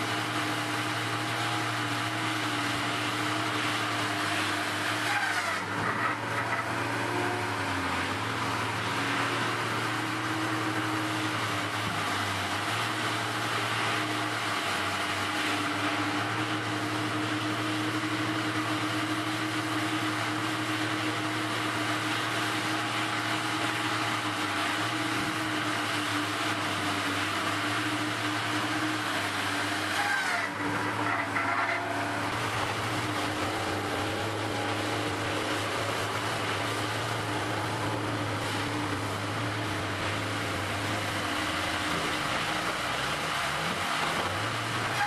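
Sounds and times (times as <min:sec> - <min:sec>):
circular saw cutting log: 0:00.0 - 0:45.0
diesel engine running: 0:00.0 - 0:45.0.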